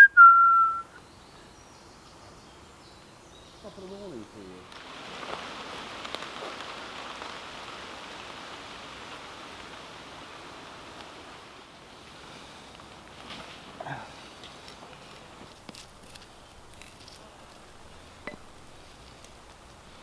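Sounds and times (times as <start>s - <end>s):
steady rain falling: 3.0s - 20.0s.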